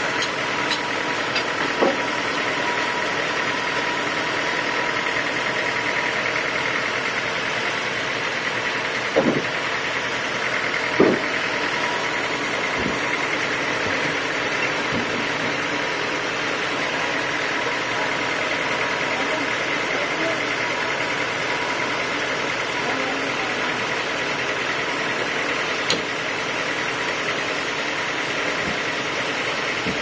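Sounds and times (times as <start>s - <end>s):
sawmill machinery whining: 0.0s - 30.0s
short knocks: 9.1s - 9.6s, 11.0s - 11.4s.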